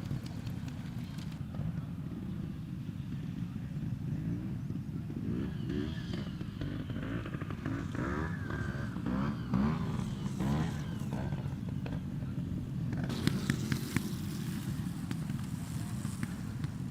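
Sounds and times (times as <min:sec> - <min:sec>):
motorcycle engine revving: 0:03.1 - 0:16.9.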